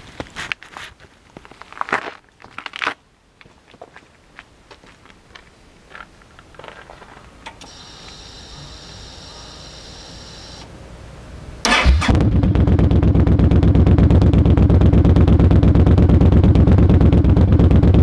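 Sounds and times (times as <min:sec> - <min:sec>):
fuel pump whine: 0:07.5 - 0:10.7, 0:11.6 - 0:18.0
motorcycle engine firing up loudly: 0:11.6 - 0:18.0.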